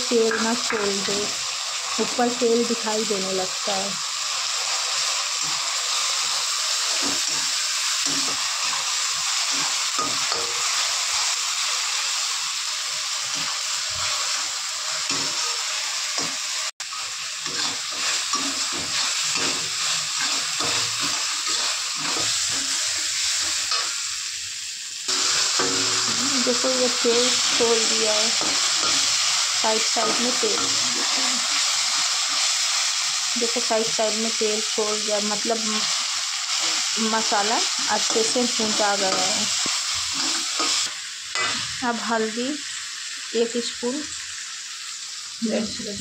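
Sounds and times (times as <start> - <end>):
paste sizzling in hot oil: 0.0 - 46.0
steel ladle scraping a pan: 13.3 - 24.0, 25.1 - 32.6.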